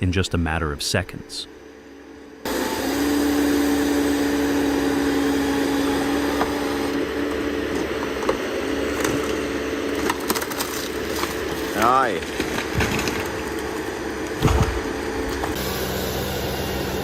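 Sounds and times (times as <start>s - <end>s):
chainsaw cutting tree trunk: 2.4s - 17.0s
machine engine: 2.4s - 17.0s
wood cracking: 8.9s - 15.6s.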